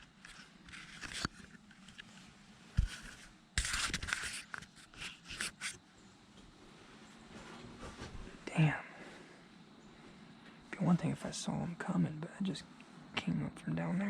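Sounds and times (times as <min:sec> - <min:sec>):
clothing and gear rustling: 0:06.5 - 0:08.5.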